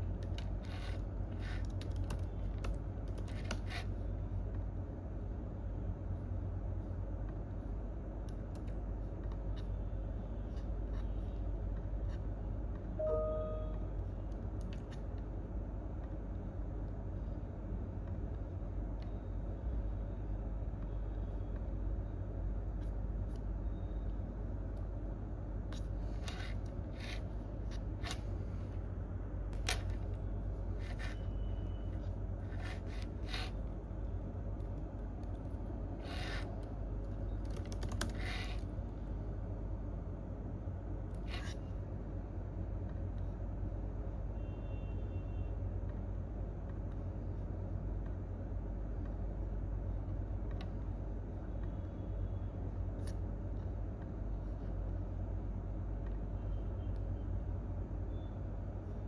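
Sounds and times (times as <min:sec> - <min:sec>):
low room rumble: 0:00.0 - 0:59.0
keyboard and mouse clicks: 0:01.4 - 0:03.9, 0:36.2 - 0:38.7.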